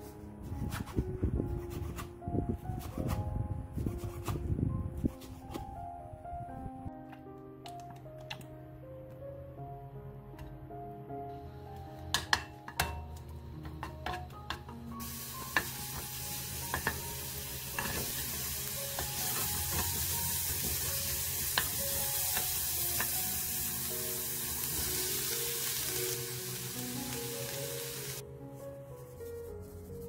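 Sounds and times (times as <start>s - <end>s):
garlic and onion sizzling in oil: 14.2s - 28.2s.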